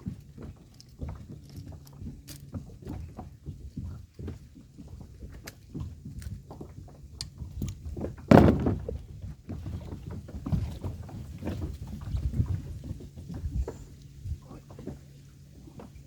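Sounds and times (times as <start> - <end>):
water slapping kayak hull: 0.0 - 16.0
wind buffeting microphone: 2.0 - 14.8
small knocks: 7.2 - 10.9
loud thump: 8.3 - 8.9.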